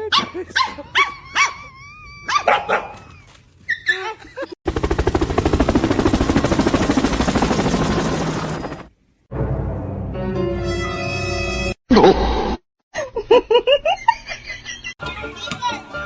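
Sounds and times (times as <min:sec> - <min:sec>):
dog yipping and barking: 0:00.1 - 0:04.2.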